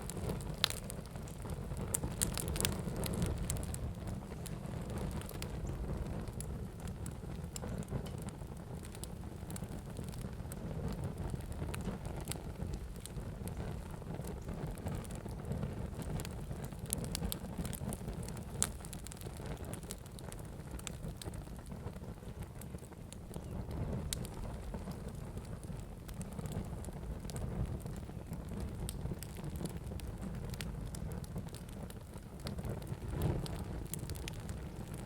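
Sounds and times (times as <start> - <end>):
fire crackles and pops: 0.0 - 35.0
fire rumbling: 0.0 - 35.0.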